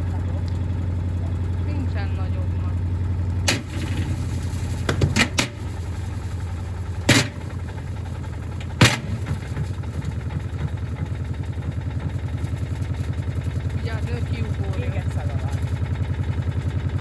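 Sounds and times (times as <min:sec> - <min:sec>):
washing machine low thumping: 0:03.4 - 0:11.2.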